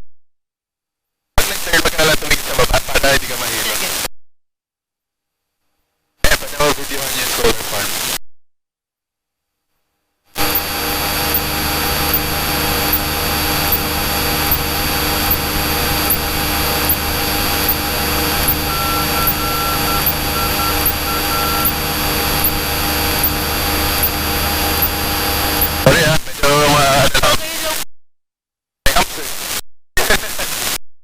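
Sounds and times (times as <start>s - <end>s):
beeps: 10.4s - 26.1s
high whine: 10.4s - 27.2s.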